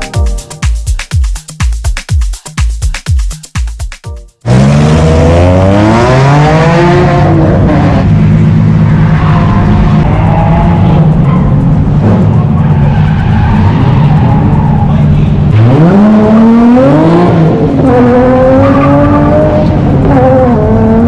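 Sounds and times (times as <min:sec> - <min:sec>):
electronic dance music: 0:00.0 - 0:05.4
car engine revving high: 0:04.4 - 0:21.0.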